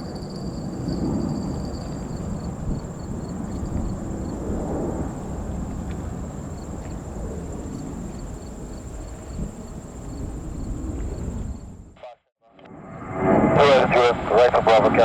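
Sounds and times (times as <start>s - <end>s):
high insect whine: 0.0s - 11.9s
cricket chirps: 0.0s - 12.0s
distant jet aircraft rumble: 0.0s - 12.0s, 12.6s - 15.0s.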